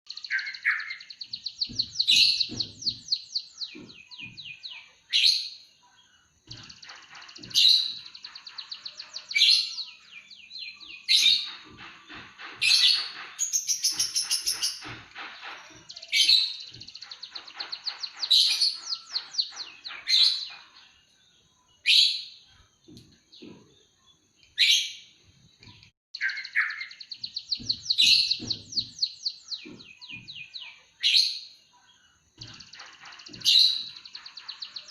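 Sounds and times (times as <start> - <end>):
bird singing trills and chirps: 0.1 - 34.9
faint low knocks: 1.2 - 4.9, 27.1 - 30.7.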